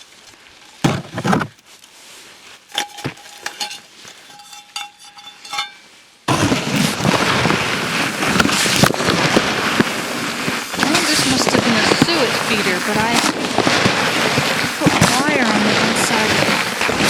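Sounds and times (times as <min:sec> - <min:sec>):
bird feeder rustling: 0:00.0 - 0:07.1.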